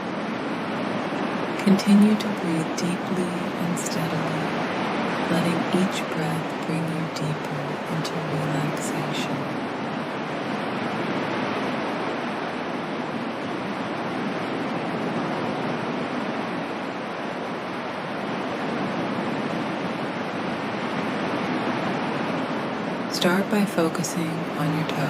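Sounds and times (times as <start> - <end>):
ocean waves washing: 0.0 - 25.0.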